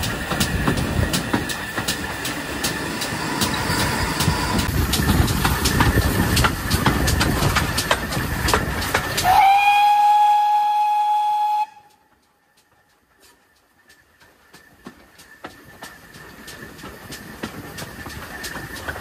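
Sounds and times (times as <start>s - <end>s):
train wheels clicking over rail joints: 0.0s - 19.0s
steam locomotive whistle: 9.2s - 12.1s.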